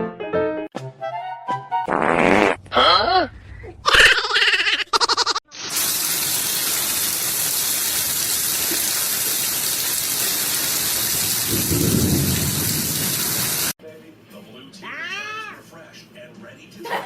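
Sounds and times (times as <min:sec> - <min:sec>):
heavy rain: 0:05.6 - 0:13.8
thunder rumbling: 0:10.8 - 0:13.7.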